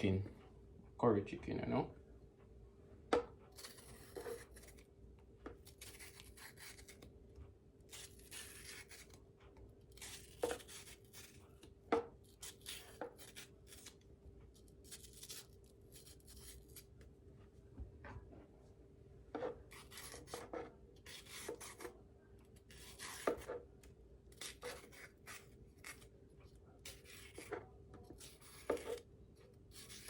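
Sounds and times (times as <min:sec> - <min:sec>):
faint steady hum: 0:00.0 - 0:30.0
rasping scrapes: 0:07.9 - 0:09.0, 0:19.4 - 0:22.0, 0:24.3 - 0:26.1, 0:26.8 - 0:29.0, 0:29.7 - 0:30.0.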